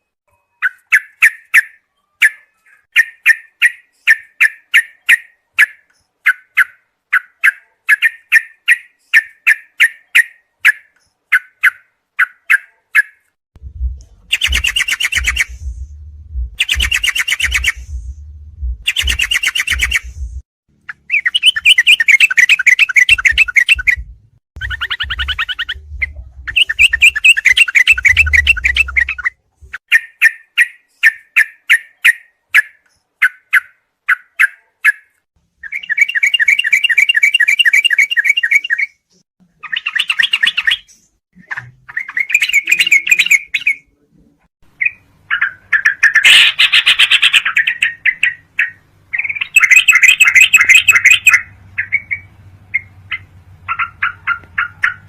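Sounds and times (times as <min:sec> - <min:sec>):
bulbul song trills and chirps: 0:00.0 - 0:43.9, 0:44.7 - 0:55.0
low hum: 0:13.6 - 0:21.2, 0:23.2 - 0:29.8.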